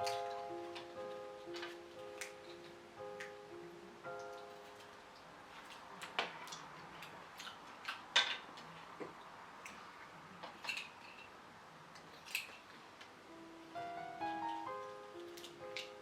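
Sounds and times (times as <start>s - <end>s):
clicks and clinks of hard objects: 10.4s - 11.3s, 12.0s - 12.8s.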